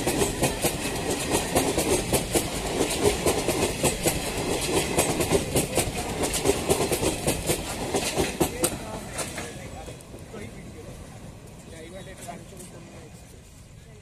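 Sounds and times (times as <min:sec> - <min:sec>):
train wheels clattering: 0:00.0 - 0:10.1
train rolling rumble: 0:00.0 - 0:14.0.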